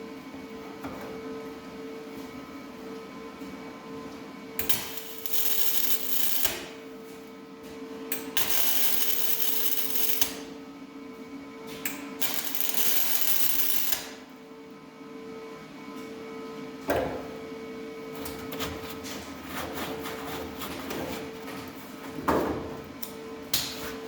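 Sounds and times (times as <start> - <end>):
welder crackling: 4.6 - 6.7, 8.4 - 10.4, 12.2 - 14.1.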